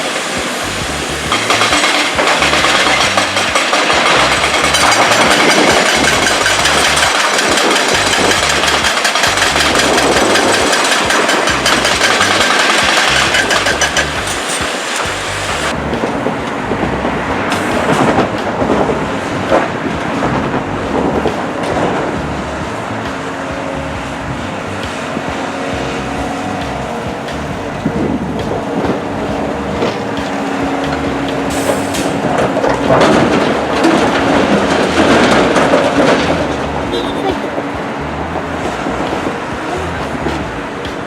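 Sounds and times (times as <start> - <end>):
diesel engine running: 0.0 - 41.0
metallic clanks and knocks: 1.2 - 15.2, 28.4 - 37.9.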